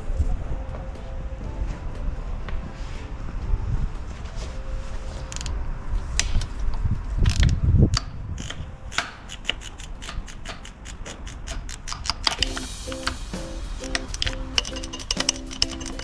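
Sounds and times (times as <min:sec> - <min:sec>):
metal rubbing and clicks: 0:05.0 - 0:16.0
ratchet clicking: 0:07.2 - 0:16.0.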